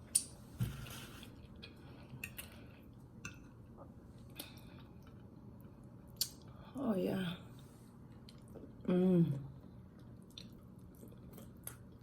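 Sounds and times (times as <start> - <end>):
chewing smacks: 10.0 - 12.0.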